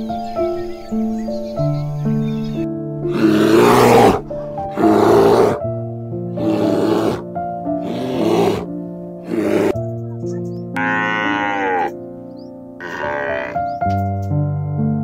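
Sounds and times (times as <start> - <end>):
soft background piano music: 0.0 - 15.0
bear growling: 3.0 - 5.7, 6.4 - 9.8.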